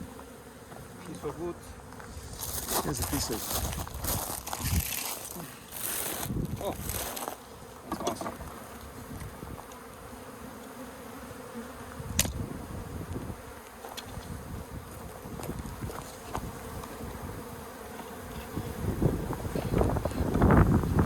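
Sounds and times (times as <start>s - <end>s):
bees buzzing: 0.0s - 21.0s
sharp click: 12.2s - 12.4s.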